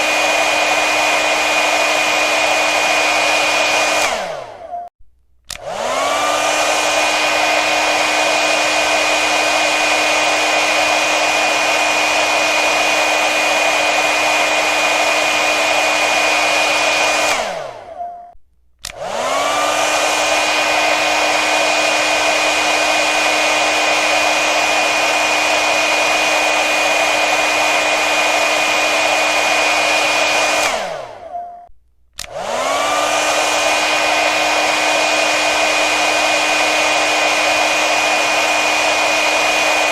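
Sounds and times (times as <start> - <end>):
hair dryer blowing: 0.0 - 4.8, 5.5 - 18.0, 18.8 - 31.4, 32.2 - 39.9
hair dryer switch click: 3.9 - 4.4, 5.5 - 7.0, 18.8 - 19.4, 32.2 - 34.2.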